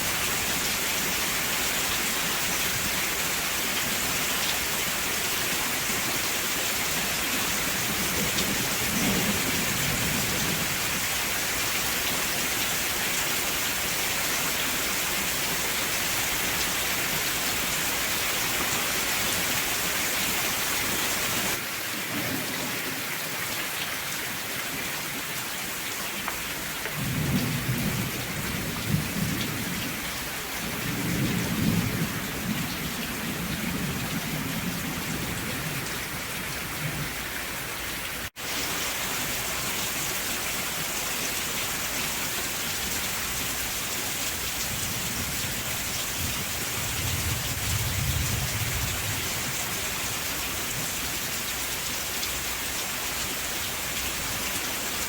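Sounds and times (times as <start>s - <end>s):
steady rain hiss: 0.0s - 55.0s
rolling thunder: 27.0s - 30.0s, 30.6s - 37.2s, 44.7s - 49.4s.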